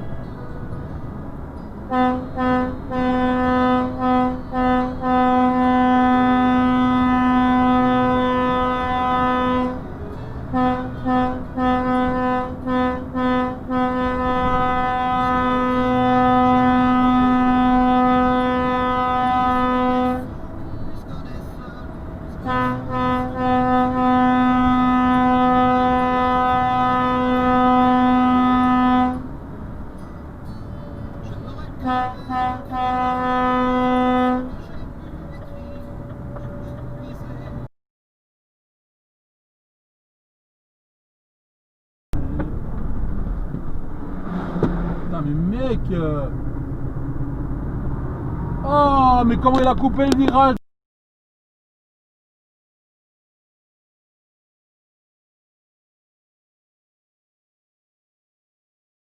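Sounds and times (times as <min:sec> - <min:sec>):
vehicle horn honking: 0:01.9 - 0:09.9, 0:10.5 - 0:20.4, 0:22.4 - 0:29.3, 0:30.8 - 0:37.2.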